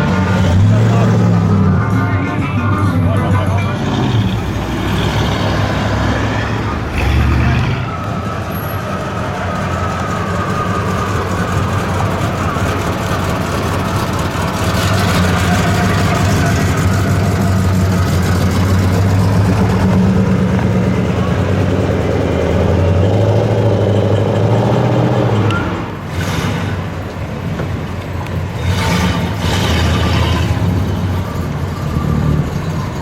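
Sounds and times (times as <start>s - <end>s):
muscle car engines running: 0.0s - 33.0s
loud engine burst: 3.8s - 12.5s, 13.4s - 27.0s.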